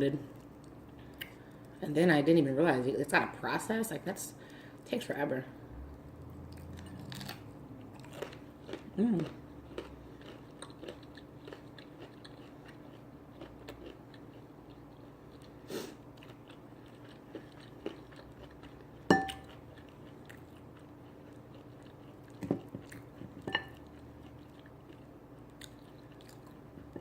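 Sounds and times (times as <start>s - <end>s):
faint steady hum: 0.0s - 27.0s
person chewing and biting: 6.5s - 27.0s
cutlery clinking on plate: 19.1s - 19.4s.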